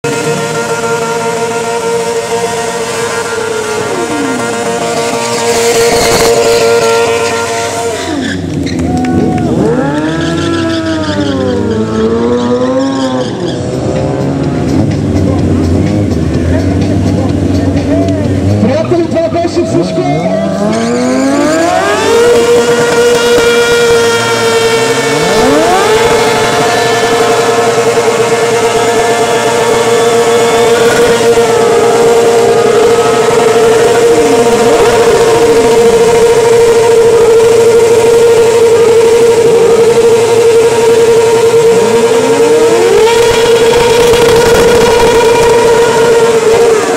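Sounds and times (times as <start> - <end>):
motorcycle engines revving: 0.0 - 46.9
spinning tyres hissing: 0.1 - 8.9, 20.4 - 46.9.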